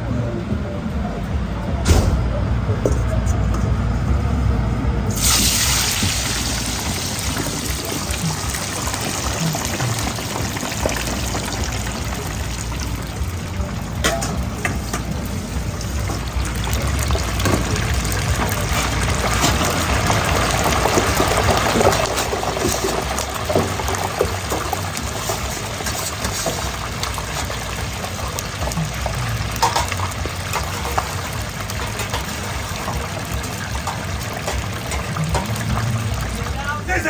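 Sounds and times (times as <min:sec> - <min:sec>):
steady hissing kitchen noise: 0:00.0 - 0:37.0
utensils or pans clattering: 0:20.7 - 0:27.5, 0:29.4 - 0:35.8.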